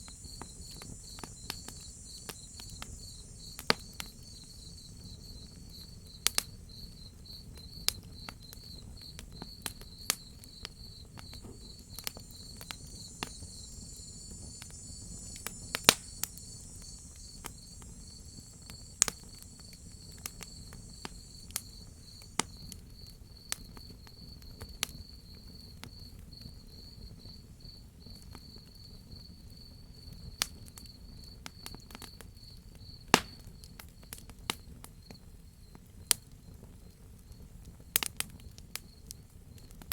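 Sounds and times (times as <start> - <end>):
wood fire crackling and popping: 0.0 - 25.0, 35.8 - 39.9
crickets chirping: 0.0 - 37.5.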